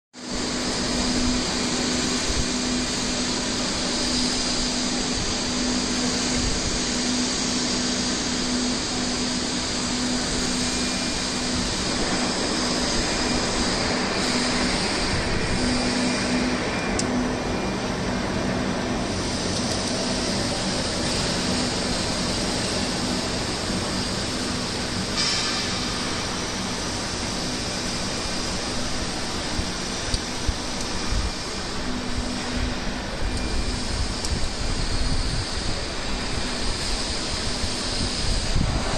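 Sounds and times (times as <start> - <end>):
machine rushing noise: 0.2 - 38.9.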